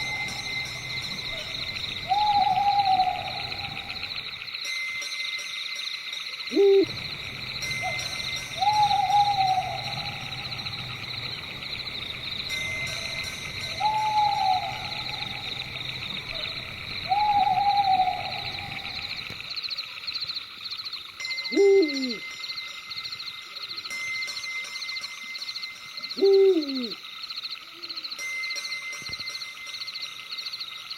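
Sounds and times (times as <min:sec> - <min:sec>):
sharp falling owl call: 0:00.0 - 0:04.2, 0:07.8 - 0:11.2, 0:13.7 - 0:19.2
high-pitched pulsing chorus: 0:00.0 - 0:04.4, 0:06.5 - 0:19.3
owl hooting: 0:00.0 - 0:04.4, 0:06.5 - 0:07.0, 0:07.6 - 0:12.0, 0:12.7 - 0:19.3, 0:21.6 - 0:22.2, 0:26.2 - 0:27.0.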